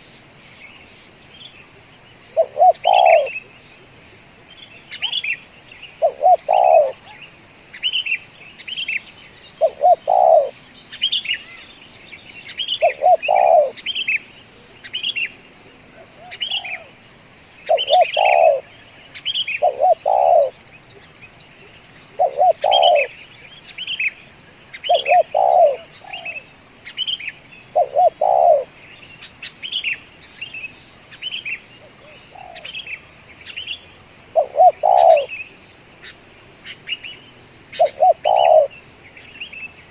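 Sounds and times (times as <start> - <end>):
small birds chirping: 0.0 - 39.9
doves cooing: 2.3 - 3.5, 6.0 - 7.2, 9.6 - 10.6, 12.8 - 13.8, 15.9 - 17.0, 17.6 - 18.7, 19.6 - 20.6, 22.1 - 23.2, 24.9 - 26.4, 27.7 - 28.7, 31.8 - 32.8, 34.3 - 35.4, 37.8 - 38.8.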